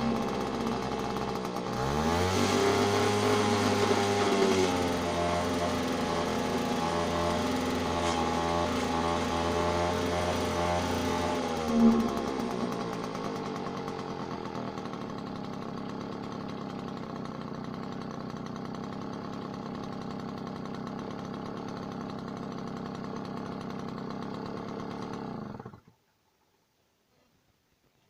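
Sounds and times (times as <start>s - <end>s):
small two-stroke engine running: 0.0s - 25.9s.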